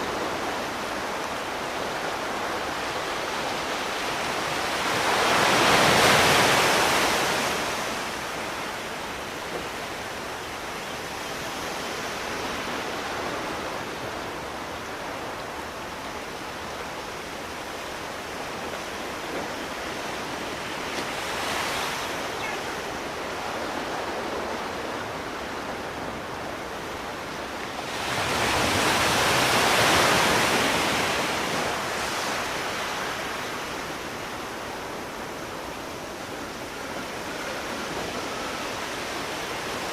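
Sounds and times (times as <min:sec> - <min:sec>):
sea waves breaking on shore: 0:00.0 - 0:39.9
steady surf wash: 0:00.0 - 0:39.9.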